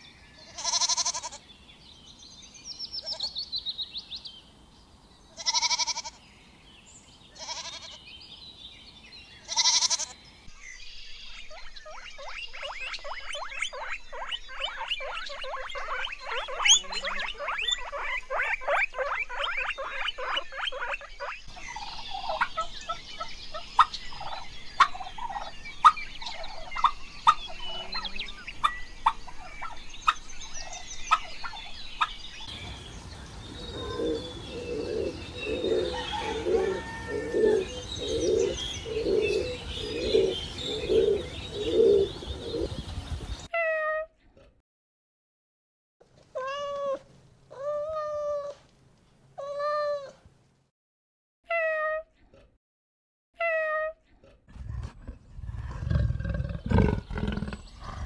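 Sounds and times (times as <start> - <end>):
low animal call: 33.7 - 42.7, 54.5 - 58.0
fast run of animal pulses: 54.5 - 58.0.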